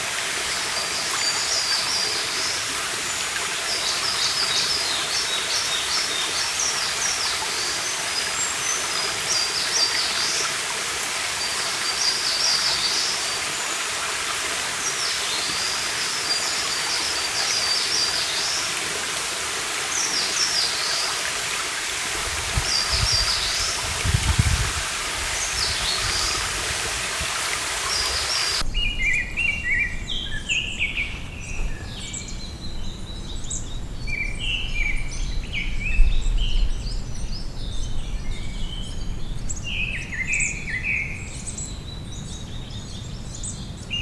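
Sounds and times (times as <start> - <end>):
stream running: 0.0 - 28.7
birds singing: 0.7 - 44.0.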